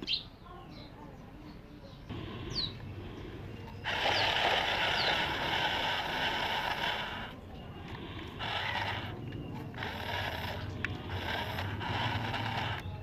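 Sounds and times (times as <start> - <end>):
toy motor buzzing whir: 3.0 - 13.0.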